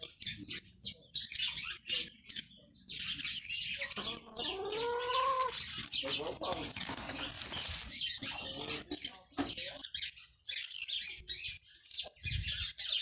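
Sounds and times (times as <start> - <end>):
birds chirping: 0.0 - 13.0
drawn-out bird call: 3.8 - 9.0.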